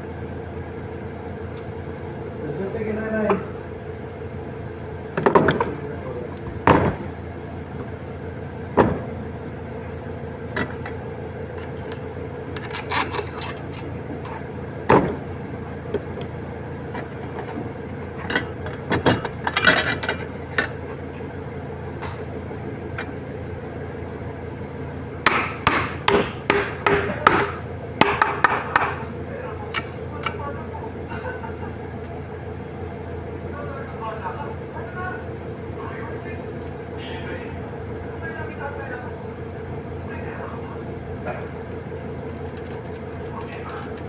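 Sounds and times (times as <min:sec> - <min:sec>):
steady hum: 0:00.0 - 0:44.0
hammer knocking on metal: 0:06.5 - 0:07.2, 0:08.8 - 0:09.3, 0:25.3 - 0:29.0.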